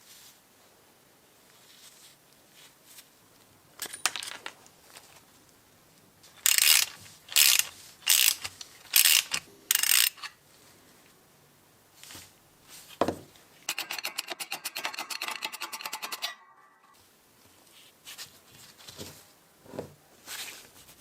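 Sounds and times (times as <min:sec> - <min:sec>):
sharp metal rasping: 0:13.7 - 0:17.0.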